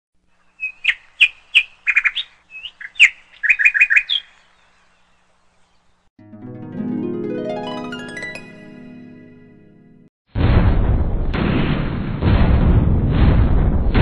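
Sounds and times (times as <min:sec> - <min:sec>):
bird chirping: 0:00.3 - 0:06.1
plucked-string music: 0:06.2 - 0:10.1.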